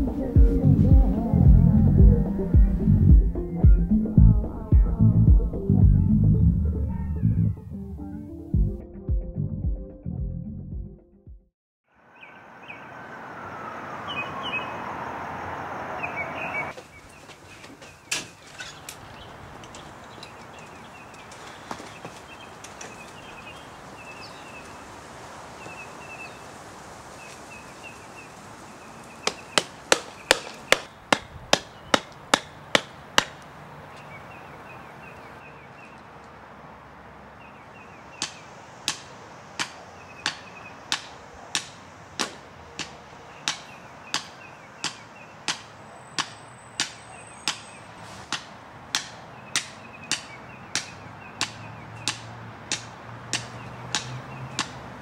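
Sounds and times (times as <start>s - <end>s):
hammer strikes on stake: 29.2s - 33.4s, 38.2s - 54.8s.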